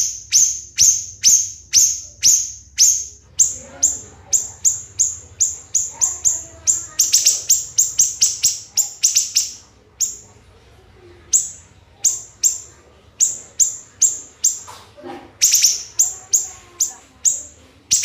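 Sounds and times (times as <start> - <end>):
bird singing shrill notes: 0.0 - 10.2, 15.4 - 18.0.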